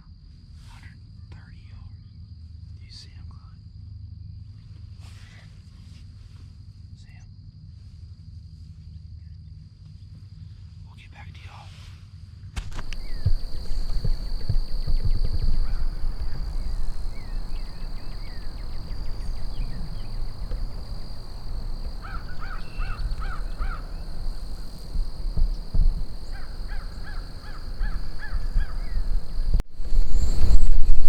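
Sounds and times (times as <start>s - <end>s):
small birds chirping: 0.8s - 3.6s, 12.8s - 30.5s
steady high whine: 12.6s - 31.0s
wind on microphone: 12.6s - 31.0s
crows cawing: 12.8s - 29.4s.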